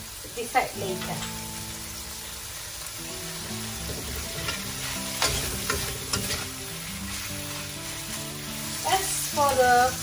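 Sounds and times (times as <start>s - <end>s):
chicken sizzling in wok: 0.0s - 10.0s
metal spatula scraping pan: 3.8s - 7.7s.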